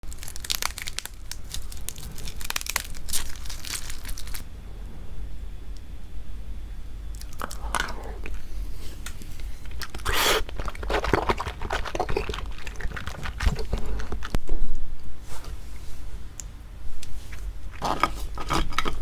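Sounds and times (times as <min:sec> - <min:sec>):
crab shell crunching while chewing: 0:00.0 - 0:04.4, 0:07.2 - 0:14.4, 0:17.6 - 0:19.0.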